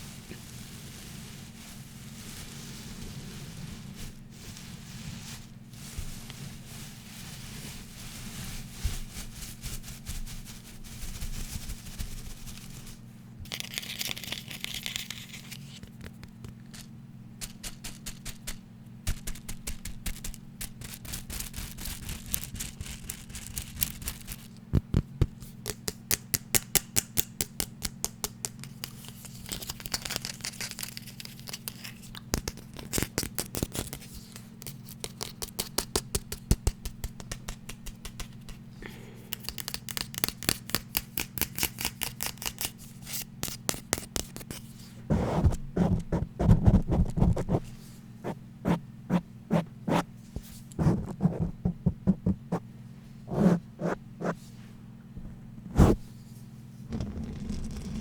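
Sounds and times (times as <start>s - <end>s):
scratching or brushing: 0.0s - 15.8s, 39.5s - 52.6s, 53.3s - 54.7s
fast tapping on hard object: 35.5s - 38.6s
steady low hum: 42.8s - 57.9s.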